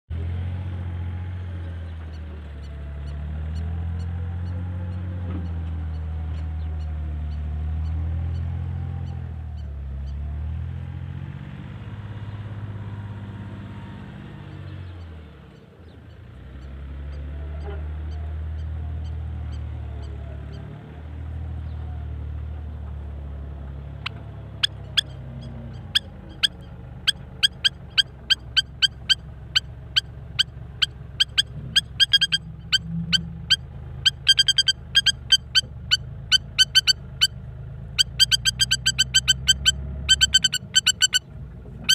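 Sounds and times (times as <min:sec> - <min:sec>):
bulldozer engine humming: 0:00.1 - 0:41.9
bird calling in sharp notes: 0:23.9 - 0:37.4, 0:38.0 - 0:41.9.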